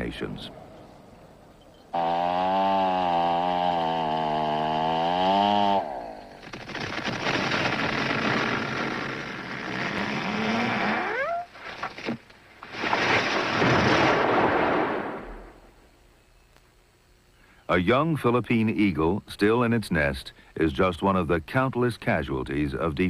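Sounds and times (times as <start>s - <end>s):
chainsaw running: 1.9s - 12.1s
rough crackling noise: 6.4s - 15.6s.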